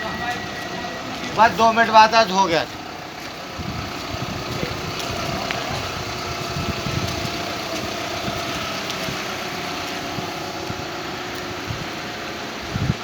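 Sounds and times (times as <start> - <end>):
faint steady whine: 0.0 - 4.3
engine idling: 0.0 - 13.0.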